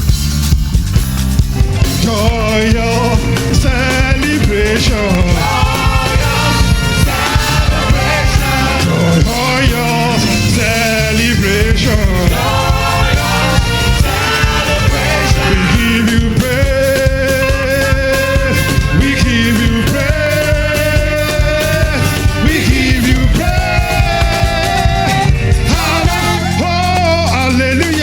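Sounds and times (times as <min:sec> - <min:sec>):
band playing with a beat: 0:00.0 - 0:28.0.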